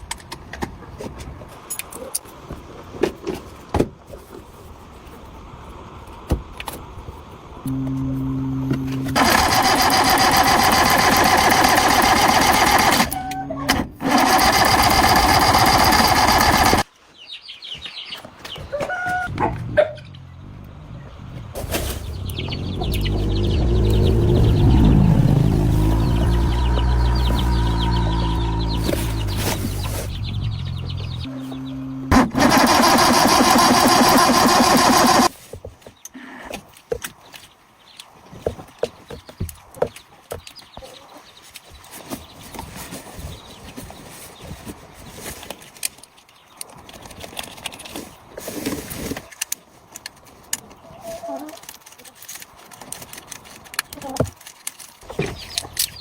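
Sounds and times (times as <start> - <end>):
steady low hum: 7.6 - 9.3
truck engine running: 7.7 - 13.4, 14.0 - 16.8, 20.1 - 35.3
machine motor buzzing: 7.7 - 16.8, 22.5 - 29.8, 30.4 - 35.3.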